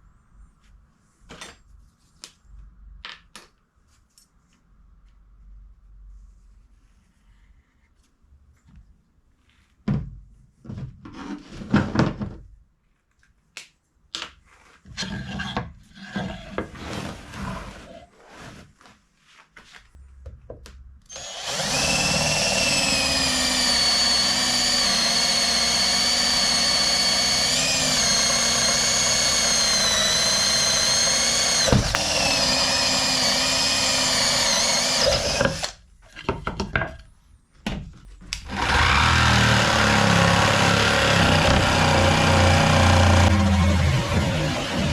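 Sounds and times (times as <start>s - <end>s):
power tool whining: 21.1s - 35.8s, 38.4s - 44.9s.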